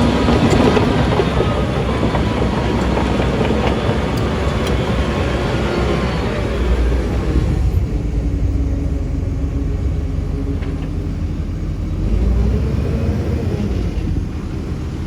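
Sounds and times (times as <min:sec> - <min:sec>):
diesel engine deep rumble: 0:00.0 - 0:15.0.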